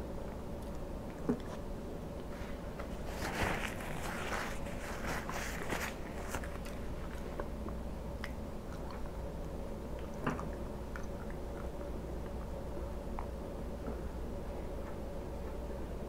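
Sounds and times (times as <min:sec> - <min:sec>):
chewing food: 0:02.2 - 0:14.0
paper napkin rustling: 0:02.4 - 0:07.2.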